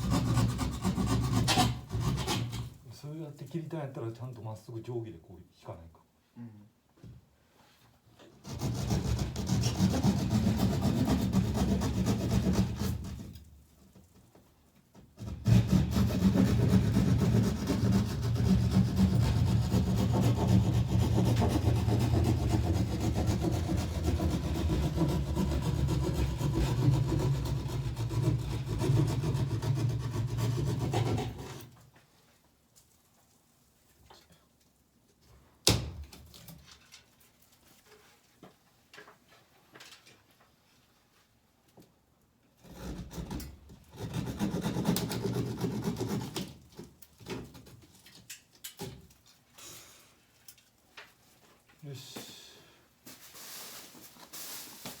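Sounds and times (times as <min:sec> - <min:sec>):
saw cutting through board: 0:00.0 - 0:02.7, 0:08.4 - 0:13.2, 0:15.2 - 0:31.7, 0:43.9 - 0:46.5.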